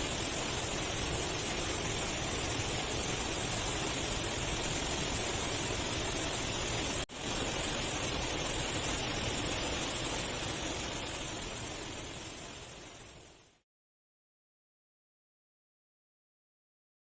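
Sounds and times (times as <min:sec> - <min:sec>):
steady rushing noise: 0:00.0 - 0:13.6.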